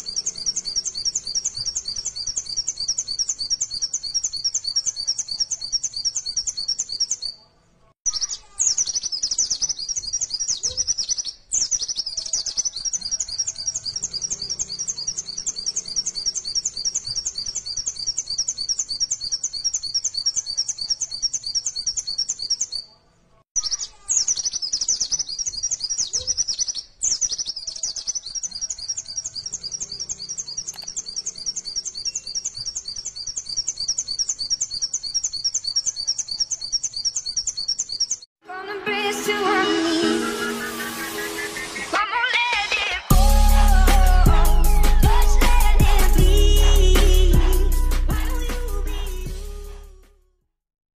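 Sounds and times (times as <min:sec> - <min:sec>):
songbird chirping: 0:00.0 - 0:38.3.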